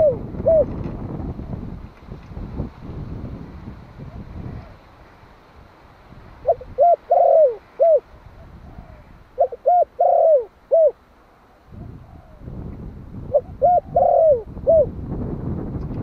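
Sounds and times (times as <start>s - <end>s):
dove cooing: 0.0s - 1.1s, 4.0s - 4.9s, 6.4s - 12.6s, 13.3s - 15.0s.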